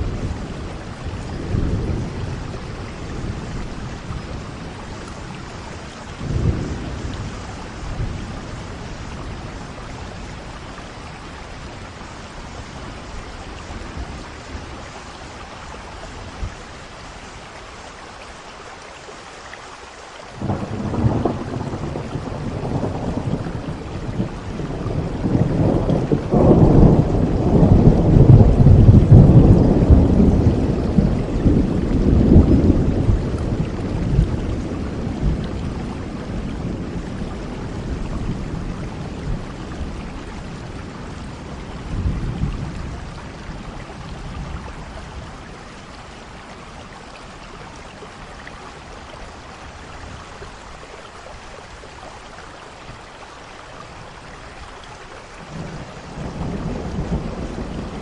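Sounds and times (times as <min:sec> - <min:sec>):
rolling thunder: 0:00.0 - 0:11.3, 0:20.4 - 0:45.7, 0:55.4 - 0:58.0
steady rain: 0:00.0 - 0:58.0.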